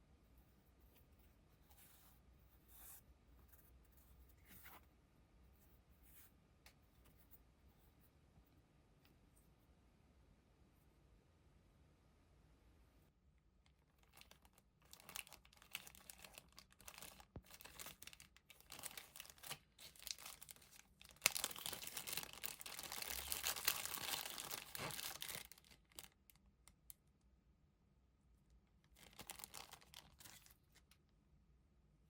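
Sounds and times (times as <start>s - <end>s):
crinkling and tearing material: 13.6s - 26.4s, 28.9s - 31.0s.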